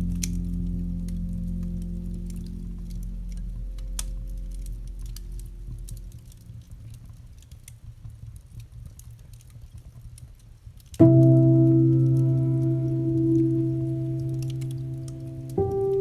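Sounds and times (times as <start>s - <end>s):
low piano chord: 0.0s - 6.9s, 11.0s - 16.0s
campfire crackling and popping: 0.0s - 16.0s.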